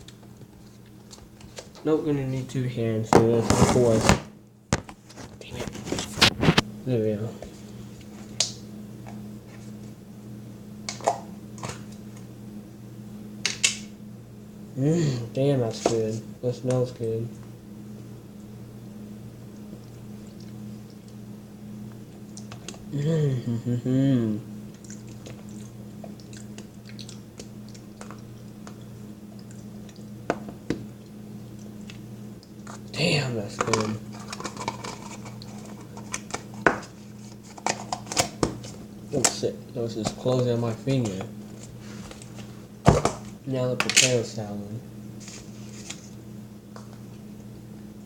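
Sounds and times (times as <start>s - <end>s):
steady low hum: 0.0s - 48.0s
person chewing food: 24.7s - 30.2s.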